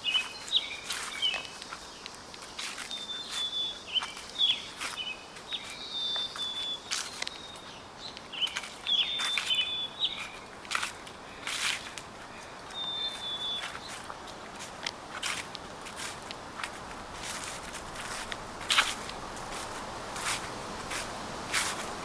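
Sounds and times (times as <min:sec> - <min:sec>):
small bird chirping: 0:00.0 - 0:14.1
footsteps crunching dry leaves: 0:00.0 - 0:22.0.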